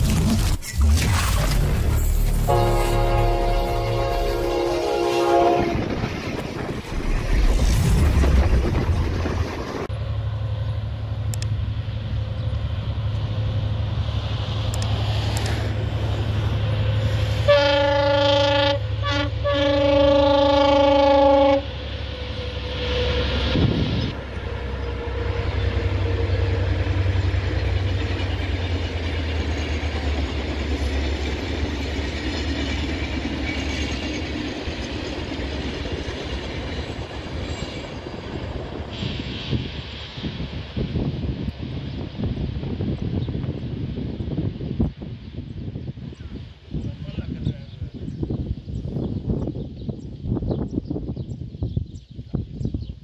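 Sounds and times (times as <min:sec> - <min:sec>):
locomotive engine rumble: 0:00.0 - 0:44.6
train cars rolling on rails: 0:00.0 - 0:47.8
train horn blasts: 0:02.4 - 0:05.9, 0:17.4 - 0:26.7.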